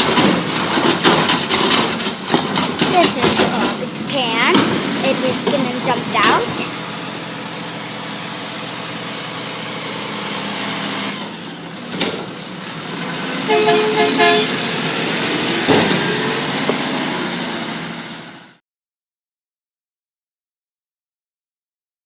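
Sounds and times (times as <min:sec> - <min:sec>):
garbage truck engine running: 0:00.0 - 0:18.6
short horn toots: 0:13.5 - 0:14.6.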